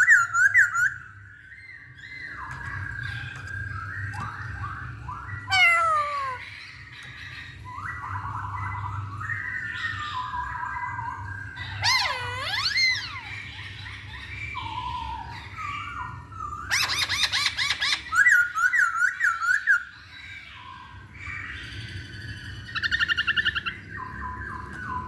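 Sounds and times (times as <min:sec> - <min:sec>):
bird singing whistled phrases: 0:07.7 - 0:13.4.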